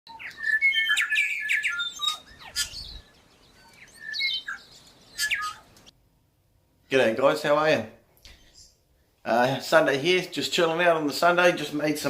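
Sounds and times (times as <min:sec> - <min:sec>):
bird calling: 0:00.1 - 0:05.9.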